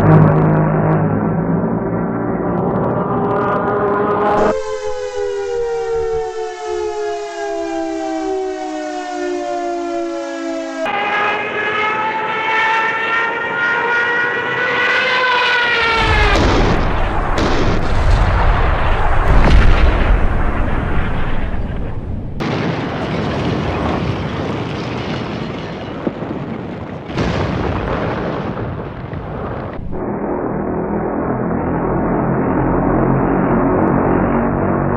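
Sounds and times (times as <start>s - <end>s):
rising siren-like wail: 0.0s - 22.7s, 29.8s - 34.9s
long falling whistle: 4.4s - 11.3s
loud explosion with rumbling: 15.8s - 30.8s.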